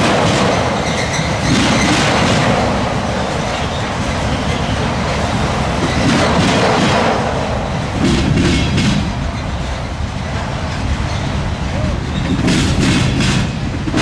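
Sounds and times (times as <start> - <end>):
train wheels clattering: 0.0 - 14.0
sharp clacks: 5.8 - 9.2.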